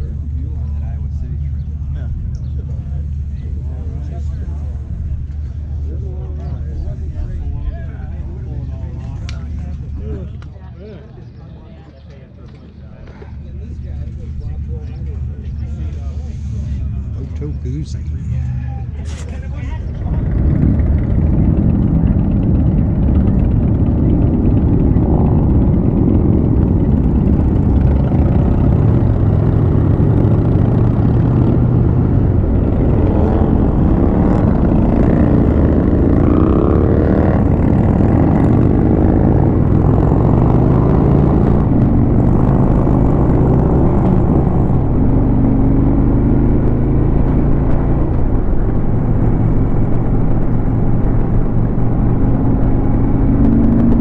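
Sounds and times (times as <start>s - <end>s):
motorcycle engine running: 13.0s - 54.0s
rushing wind noise: 19.2s - 54.0s.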